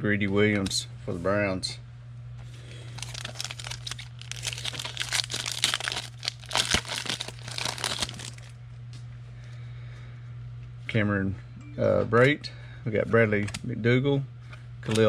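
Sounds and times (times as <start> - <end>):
foil wrapper crinkling and tearing: 2.7 - 8.6.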